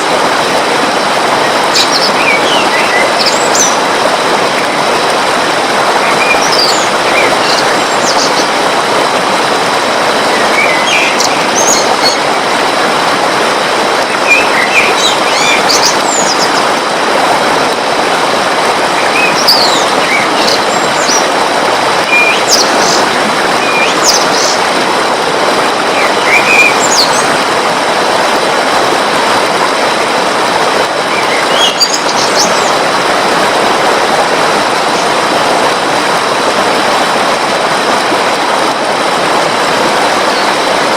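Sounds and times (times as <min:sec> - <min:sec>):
rushing water: 0:00.0 - 0:40.9
bird chirps and whistled calls: 0:01.8 - 0:03.8, 0:10.6 - 0:12.2, 0:14.2 - 0:16.5, 0:19.2 - 0:21.2, 0:22.1 - 0:23.0, 0:26.0 - 0:27.2, 0:31.2 - 0:32.7.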